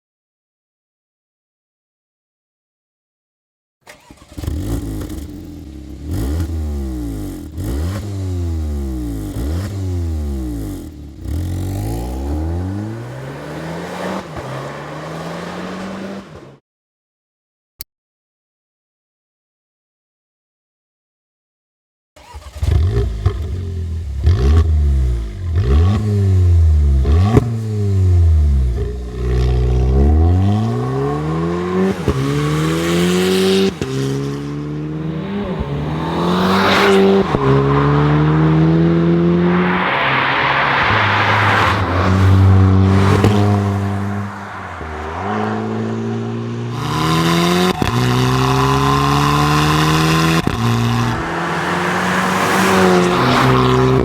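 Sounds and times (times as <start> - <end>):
car engine revving: 3.9 - 16.4, 22.2 - 54.0
exhaust cracks: 39.9 - 54.0.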